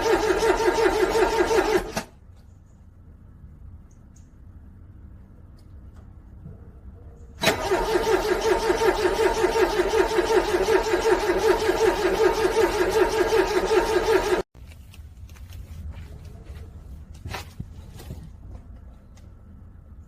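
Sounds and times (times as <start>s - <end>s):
car starter cranking engine: 0.0s - 2.2s, 7.4s - 14.4s.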